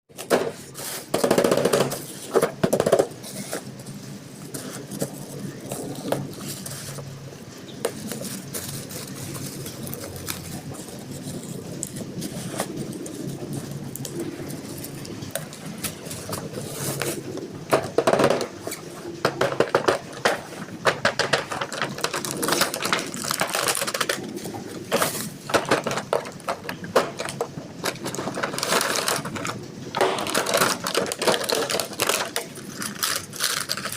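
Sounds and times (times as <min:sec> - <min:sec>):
plastic packaging crinkling: 0:00.5 - 0:33.9
toy cars clicking and knocking: 0:07.8 - 0:33.9.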